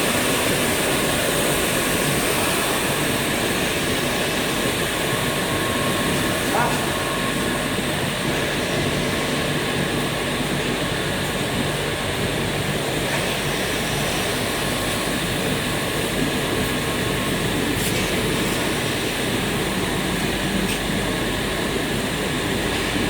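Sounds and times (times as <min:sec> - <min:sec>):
steady machine drone: 0:00.0 - 0:23.0.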